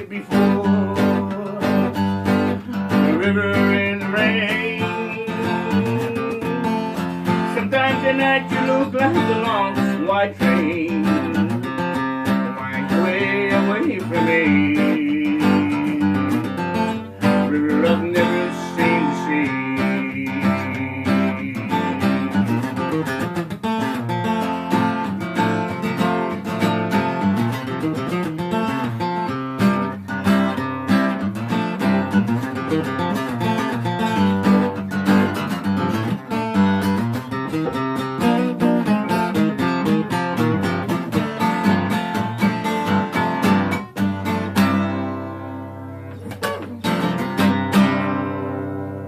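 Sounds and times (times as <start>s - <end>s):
acoustic guitar: 0.0s - 49.0s.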